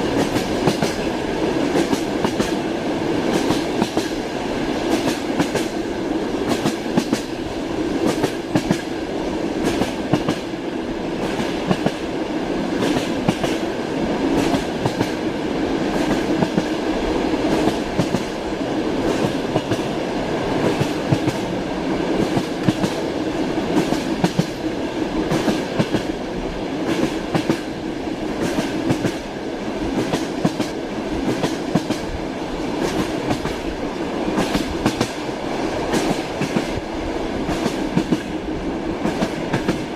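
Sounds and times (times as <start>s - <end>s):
train wheels clacking over rail joints: 0.0s - 1.1s, 1.7s - 2.6s, 3.3s - 4.2s, 4.9s - 5.8s, 6.4s - 7.4s, 8.0s - 8.9s, 9.6s - 10.5s, 11.2s - 12.0s, 12.8s - 13.7s, 14.3s - 15.2s, 17.5s - 18.4s, 22.1s - 23.1s, 23.7s - 24.7s, 26.8s - 27.7s, 28.4s - 29.2s, 32.8s - 33.7s, 34.4s - 35.2s, 35.9s - 36.8s, 37.4s - 38.4s, 39.0s - 39.9s
rumble of moving train carriage: 0.0s - 39.9s.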